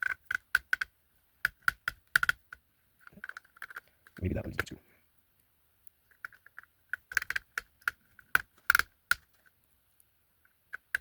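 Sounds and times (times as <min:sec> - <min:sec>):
small hard parts clicking: 0:00.0 - 0:04.7, 0:06.0 - 0:09.5, 0:10.4 - 0:11.0.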